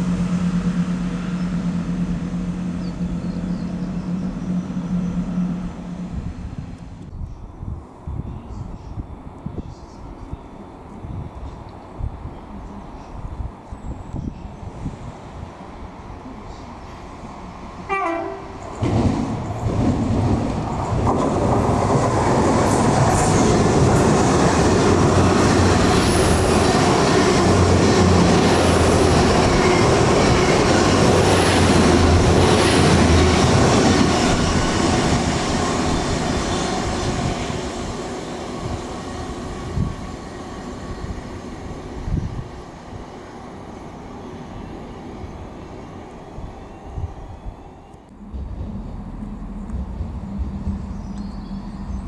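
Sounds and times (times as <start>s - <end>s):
train passing: 0.0s - 52.0s
train horn blast: 17.8s - 18.7s.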